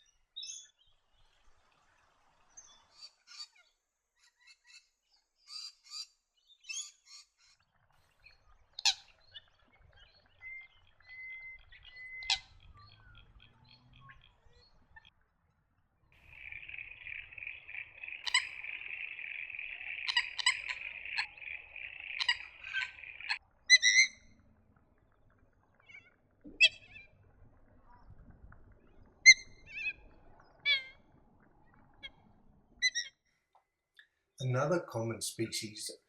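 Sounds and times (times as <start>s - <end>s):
waterbird calling: 8.6s - 15.1s, 16.2s - 24.4s, 25.7s - 28.0s, 28.9s - 33.2s.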